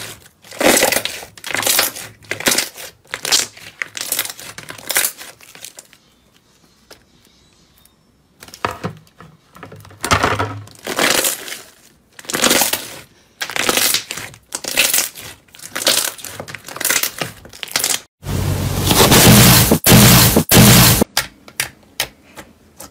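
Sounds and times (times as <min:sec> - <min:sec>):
crunchy material being crushed: 0:00.0 - 0:06.0, 0:10.6 - 0:18.1.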